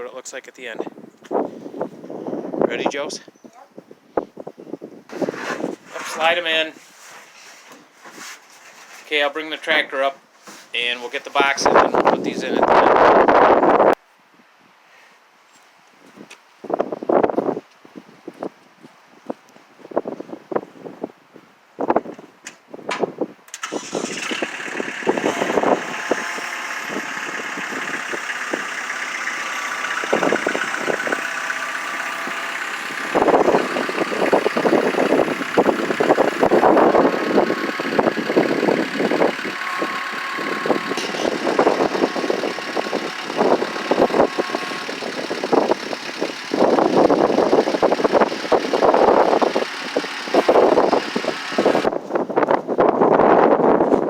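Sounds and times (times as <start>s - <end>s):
tractor engine running: 23.5s - 52.0s.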